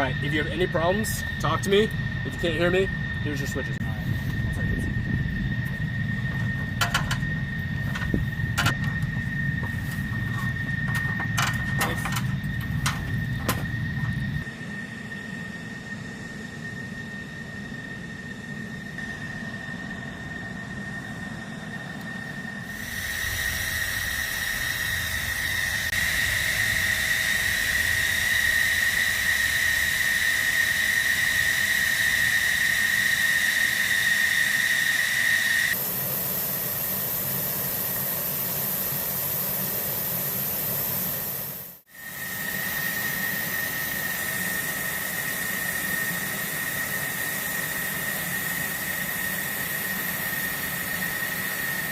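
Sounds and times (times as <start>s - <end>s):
jet engine turbine whine: 0.0s - 51.9s
rush of air: 1.2s - 39.7s.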